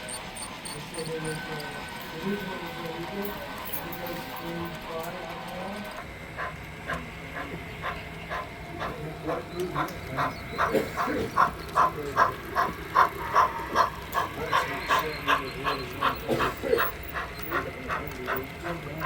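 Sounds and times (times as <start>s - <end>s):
low running hum: 0.0s - 19.0s
model steam locomotive chuffing: 0.0s - 19.0s.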